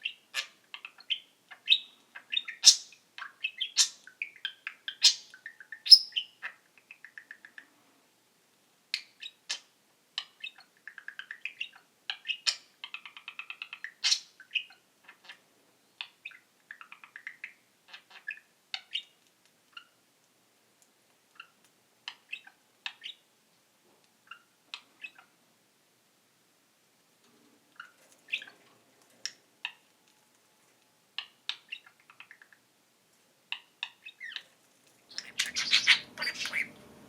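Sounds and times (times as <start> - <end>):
budgerigar chirping and warbling: 0.0 - 7.4, 9.2 - 15.4, 16.0 - 19.1, 21.4 - 23.2, 24.3 - 25.3, 27.8 - 28.6, 33.5 - 34.5, 35.1 - 36.8.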